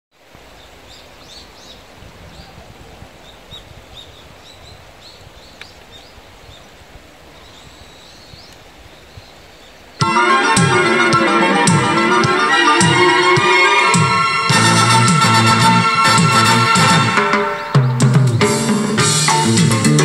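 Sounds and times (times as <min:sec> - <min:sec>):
low background noise: 0:00.2 - 0:18.9
faint bird chirps: 0:00.5 - 0:10.0
loud music: 0:10.0 - 0:20.0.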